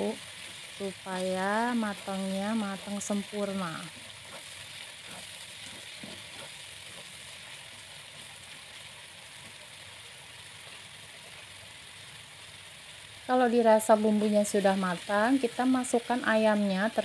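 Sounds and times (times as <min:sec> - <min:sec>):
spice paste sizzling in oil: 0:00.0 - 0:17.0
spatula scraping and stirring: 0:00.2 - 0:08.6.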